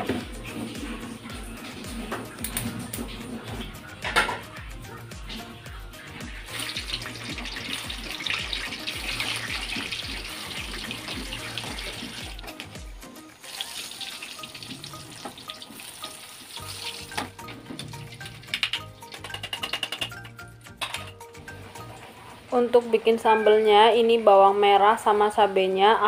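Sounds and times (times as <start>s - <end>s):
background music with beat: 0.0s - 22.4s
food deep-frying in hot oil: 6.0s - 12.8s, 13.4s - 20.5s.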